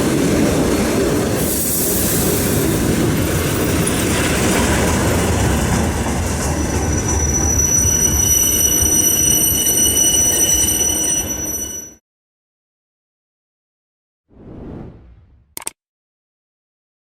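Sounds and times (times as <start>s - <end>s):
train wheels rumbling on rails: 0.0s - 10.6s
high wheel squealing: 6.5s - 12.0s.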